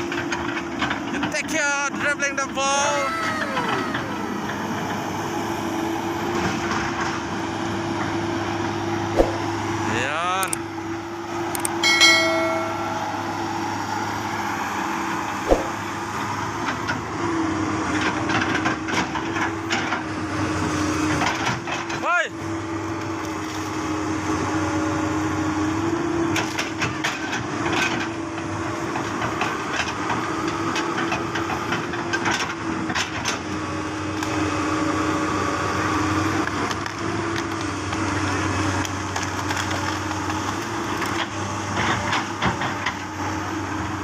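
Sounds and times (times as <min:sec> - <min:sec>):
diesel engine under load: 0:00.0 - 0:44.0
tree cracking and splintering: 0:36.6 - 0:41.4.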